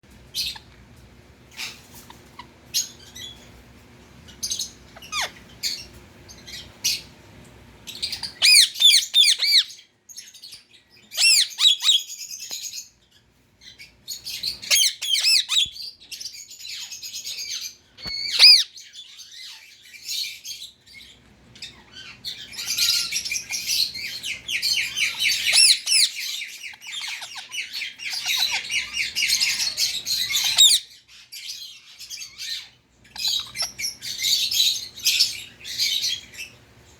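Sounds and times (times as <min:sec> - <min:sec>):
parakeet screeching: 0:04.5 - 0:05.9, 0:08.0 - 0:09.8, 0:11.1 - 0:12.2, 0:14.3 - 0:15.9, 0:16.7 - 0:20.3, 0:21.6 - 0:36.5.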